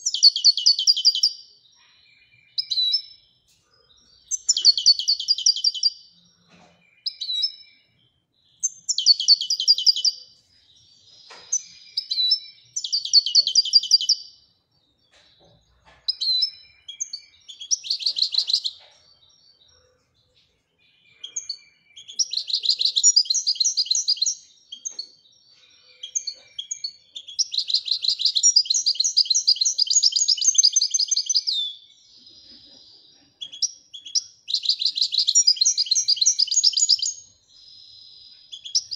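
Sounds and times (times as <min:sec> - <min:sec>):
goldfinch singing: 0:00.0 - 0:01.4, 0:04.2 - 0:06.0, 0:08.6 - 0:10.3, 0:11.1 - 0:14.4, 0:16.1 - 0:18.9, 0:21.1 - 0:25.1, 0:26.0 - 0:31.9, 0:32.5 - 0:37.6, 0:38.5 - 0:38.9.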